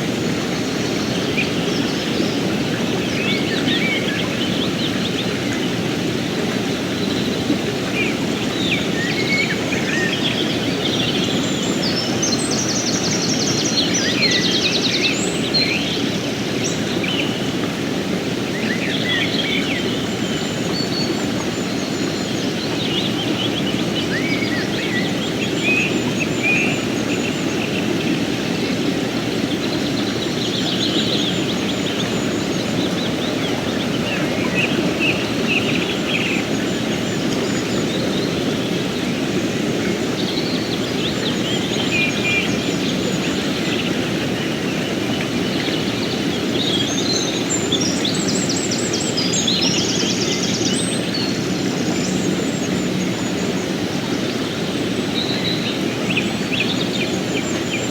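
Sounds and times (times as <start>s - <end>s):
songbirds chirping: 0.0s - 57.9s
stream flowing: 0.0s - 57.9s.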